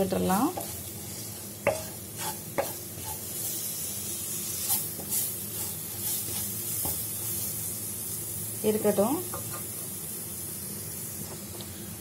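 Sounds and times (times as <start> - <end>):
onions sizzling in oil: 0.0 - 12.0
wooden spatula scraping pan: 0.5 - 3.6.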